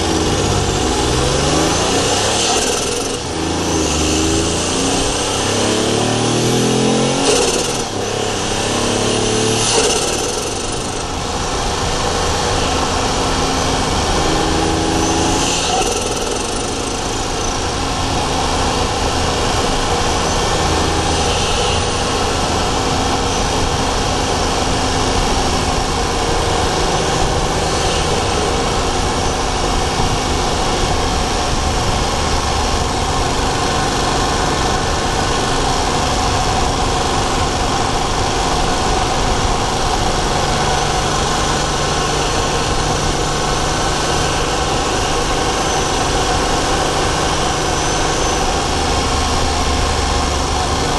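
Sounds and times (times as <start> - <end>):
car engine revving: 0.0 - 50.9.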